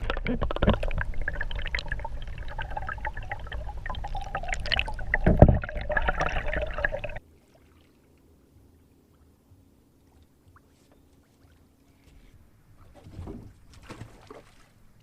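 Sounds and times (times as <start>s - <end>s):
water splashing and dripping: 12.8s - 15.0s.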